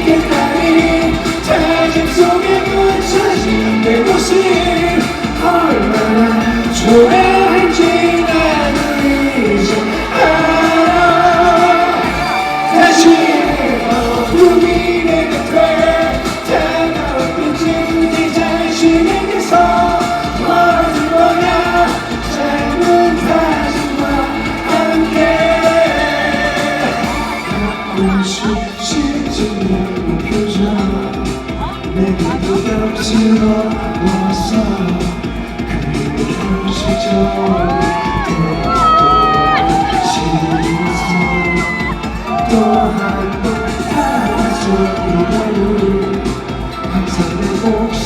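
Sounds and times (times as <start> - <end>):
live pop band playing: 0.0 - 48.0
man singing: 0.0 - 48.0.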